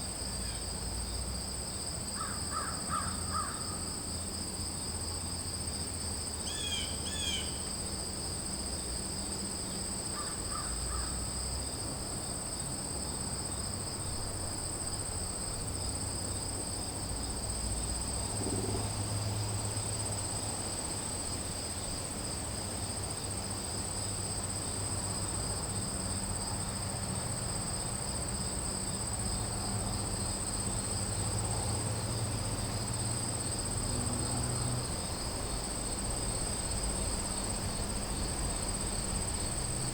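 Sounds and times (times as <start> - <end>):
crickets trilling: 0.0 - 39.9
crow cawing: 2.2 - 3.6.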